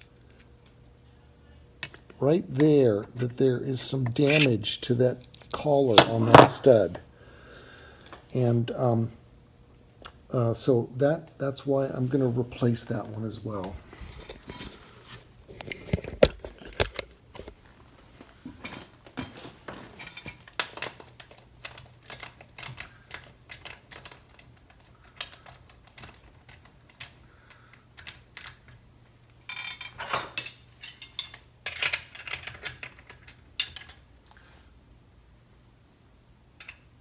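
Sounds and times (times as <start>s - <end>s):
metal tools clicking on metal: 4.1s - 4.5s.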